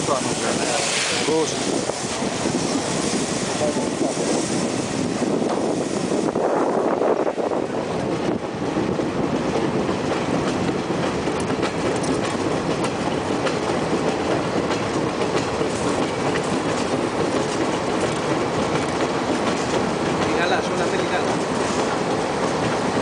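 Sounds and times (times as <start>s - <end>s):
train rumbling: 0.0s - 23.0s
wheels clickety-clack over rail joints: 7.3s - 23.0s.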